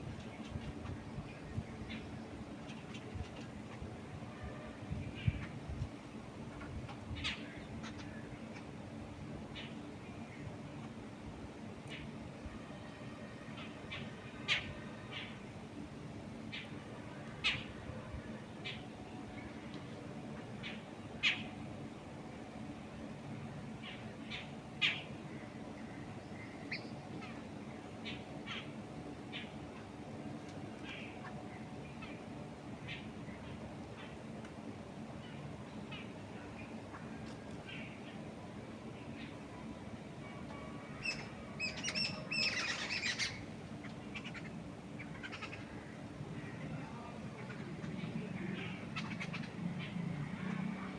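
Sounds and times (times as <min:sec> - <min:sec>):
wind in trees: 0:00.0 - 0:50.9
birds chirping: 0:13.5 - 0:50.9.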